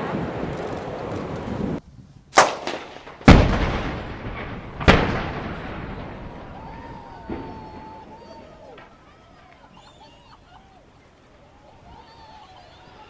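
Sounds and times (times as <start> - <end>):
steady noisy rumble: 1.6 - 13.0
explosive demolition bangs: 2.4 - 8.9.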